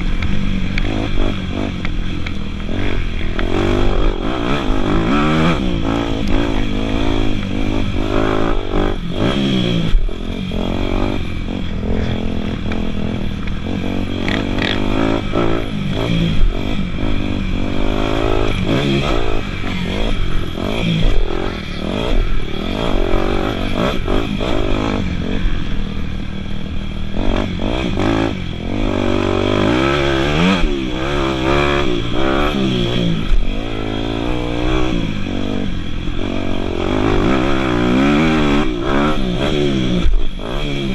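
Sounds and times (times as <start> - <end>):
clatter: 0.0 - 40.9
dirt bike engine revving: 0.0 - 40.9.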